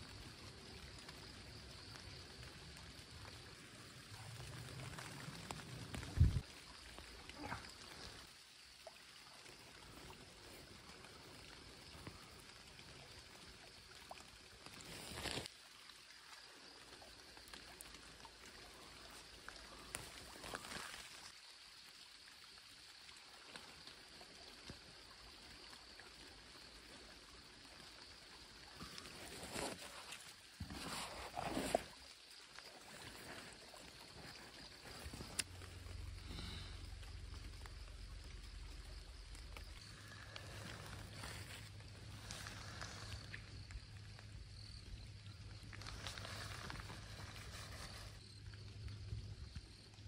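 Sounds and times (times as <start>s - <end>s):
light rain hissing: 0.0s - 50.0s
rustling of branches and leaves: 0.1s - 8.7s, 9.4s - 15.8s, 16.7s - 21.4s, 28.7s - 48.9s
rain jacket rustling: 14.8s - 15.5s, 29.1s - 32.0s.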